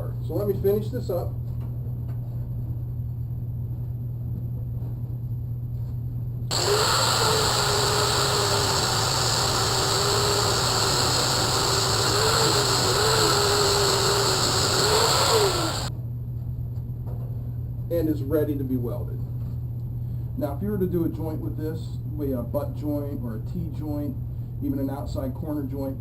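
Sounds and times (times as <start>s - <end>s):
angle grinder polishing steel: 6.5s - 15.9s
steady low hum: 6.5s - 15.9s.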